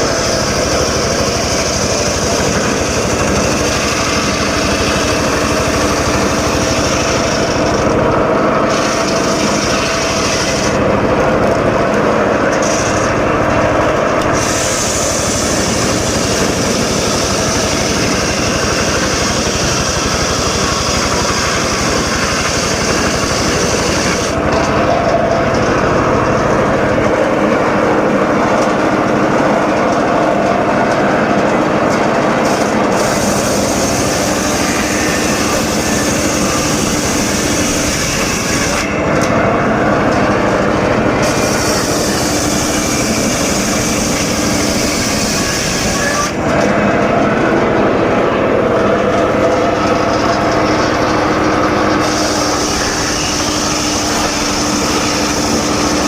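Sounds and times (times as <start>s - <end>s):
circular saw cutting wood: 0.0s - 56.0s.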